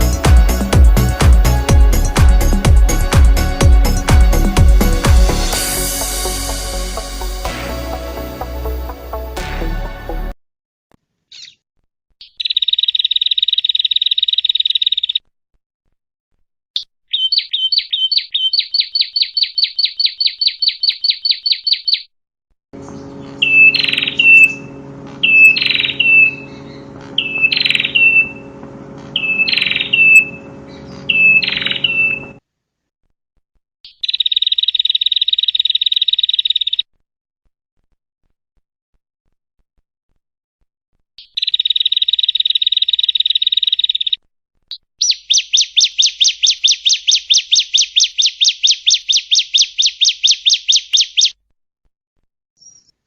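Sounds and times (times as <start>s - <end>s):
songbird sharp chirps: 11.3s - 11.6s, 12.2s - 15.2s, 16.8s - 22.1s, 22.8s - 32.4s, 33.8s - 36.9s, 41.2s - 51.4s
low steady hum: 22.8s - 32.4s
songbird buzzy trill: 22.8s - 32.4s, 41.2s - 51.4s.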